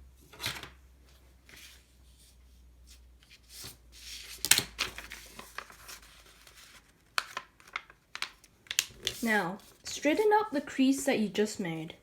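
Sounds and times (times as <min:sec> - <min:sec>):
paper rustling and crinkling: 0:01.4 - 0:10.3.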